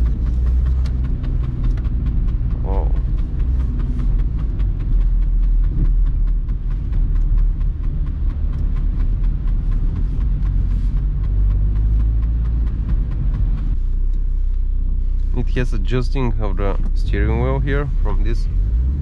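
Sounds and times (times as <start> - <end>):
rapid even ticking: 0.0 - 14.3
car engine and road drone: 0.0 - 19.0.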